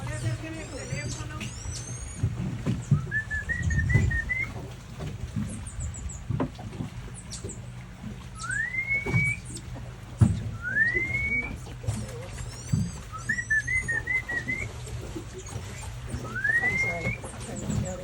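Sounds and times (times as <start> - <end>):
boat motor idling: 0.0 - 18.0
person whistling: 3.0 - 4.5, 8.4 - 9.4, 10.6 - 11.6, 13.1 - 14.7, 16.3 - 17.2.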